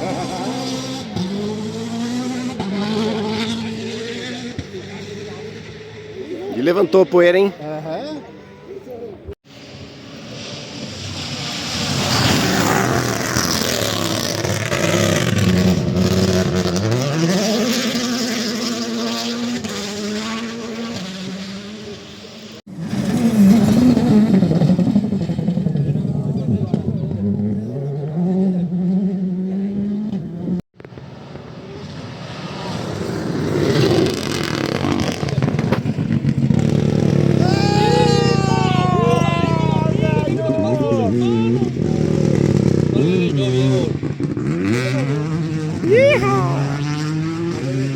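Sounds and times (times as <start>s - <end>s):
rally car engine accelerating: 0.0s - 8.0s, 9.6s - 47.9s
gravel and tyre noise: 0.0s - 47.9s.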